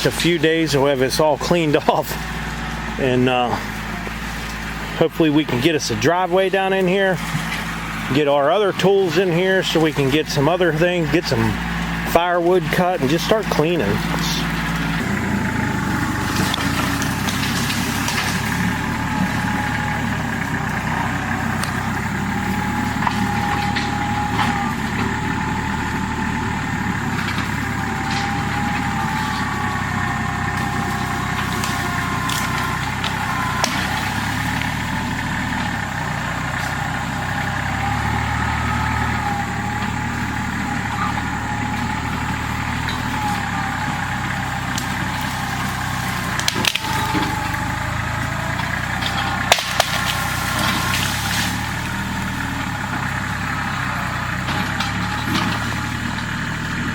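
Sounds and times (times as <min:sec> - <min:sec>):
machine engine whining: 0:00.0 - 0:56.9
brush and wood snapping: 0:16.0 - 0:19.4, 0:30.5 - 0:34.8, 0:44.7 - 0:47.6, 0:48.6 - 0:51.6.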